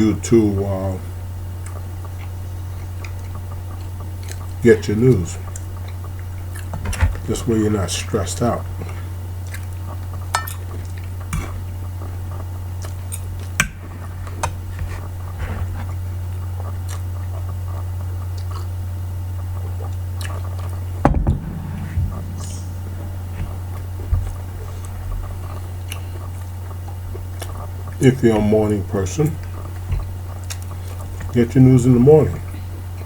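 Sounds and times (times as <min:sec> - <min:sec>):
steady low hum: 0:00.0 - 0:33.0
person chewing food: 0:16.7 - 0:17.5, 0:18.3 - 0:18.7, 0:30.4 - 0:31.0
loud knock: 0:21.1 - 0:24.4.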